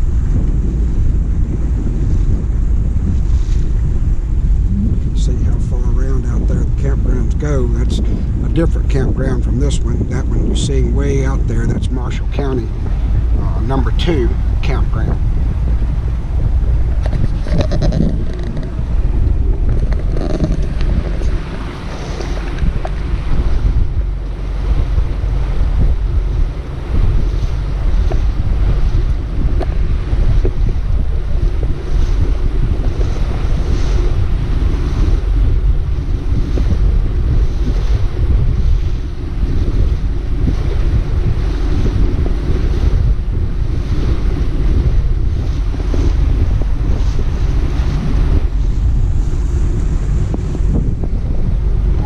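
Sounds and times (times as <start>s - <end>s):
motorboat engine: 0.0s - 52.0s
water rushing past: 0.0s - 52.0s
wind buffeting microphone: 0.0s - 52.0s.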